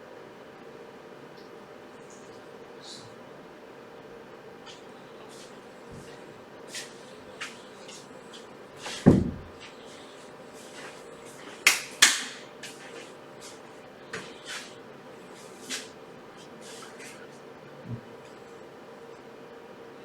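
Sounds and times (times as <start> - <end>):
low thump: 9.1 - 9.5.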